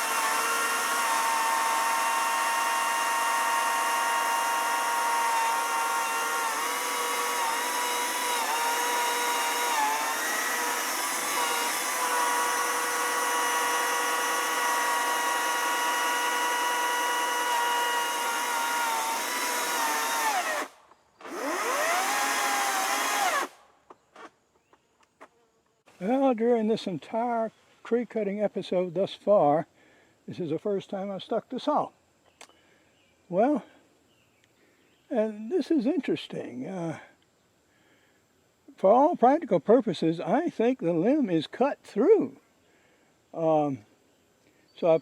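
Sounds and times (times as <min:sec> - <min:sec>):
electric chainsaw cutting wood: 0:00.0 - 0:23.6.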